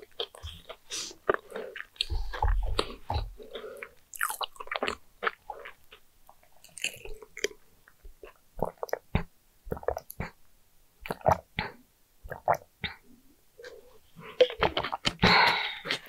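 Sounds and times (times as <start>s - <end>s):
person chewing: 0.0s - 10.4s, 13.6s - 16.0s.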